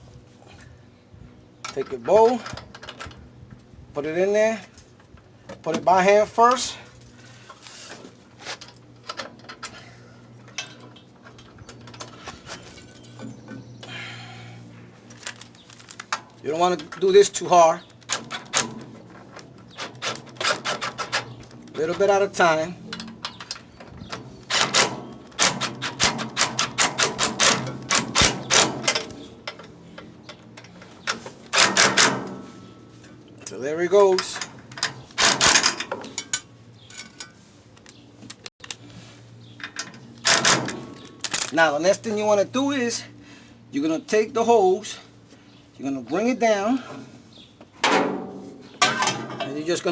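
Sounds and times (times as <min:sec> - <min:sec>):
small metal parts clicking: 0:39.6 - 0:41.6.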